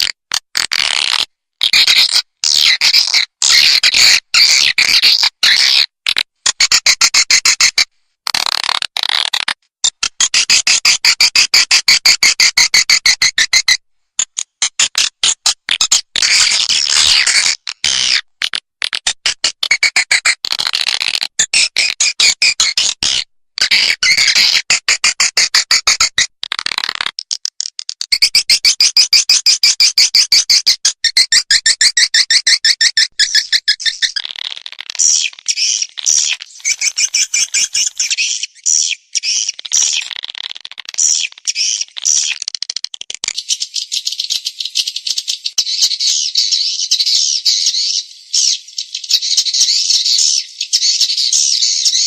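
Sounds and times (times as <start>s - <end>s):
high twittering bird chirps: 28.1s - 42.6s, 43.3s - 52.0s.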